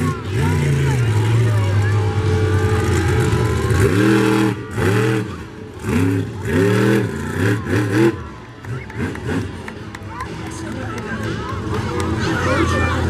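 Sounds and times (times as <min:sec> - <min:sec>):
monster truck engine revving: 0:00.0 - 0:10.2.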